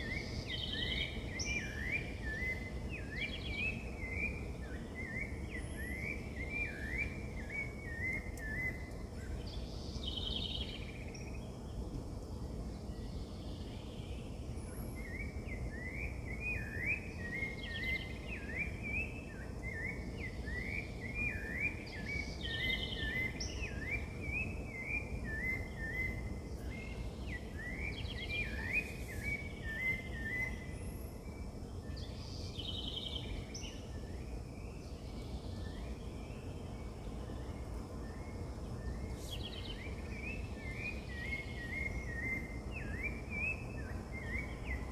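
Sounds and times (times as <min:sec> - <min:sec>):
birds chirping: 0:12.9 - 0:44.9.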